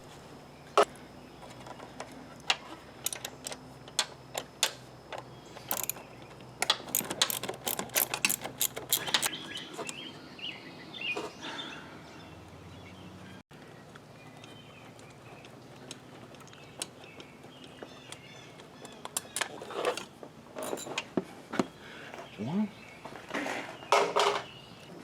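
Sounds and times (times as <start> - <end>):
socket ratchet clicking: 5.7 - 6.0, 6.6 - 9.4.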